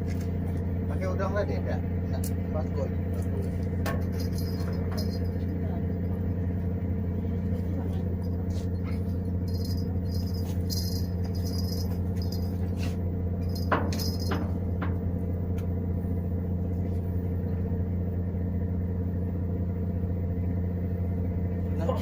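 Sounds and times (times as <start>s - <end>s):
boat motor humming: 0.0s - 22.0s
light metallic rattling: 3.1s - 6.3s, 7.6s - 15.6s.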